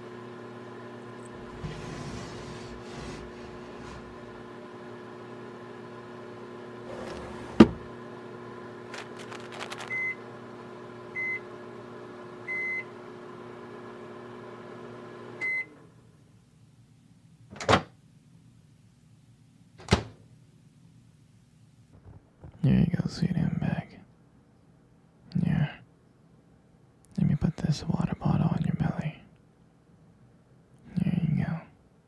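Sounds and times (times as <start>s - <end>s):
microwave oven humming: 0.0s - 25.0s.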